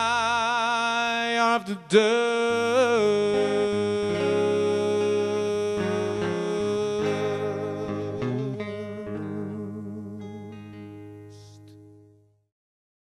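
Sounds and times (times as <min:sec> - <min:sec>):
electric guitar notes: 0:00.0 - 0:12.4
bass guitar notes: 0:02.6 - 0:11.9.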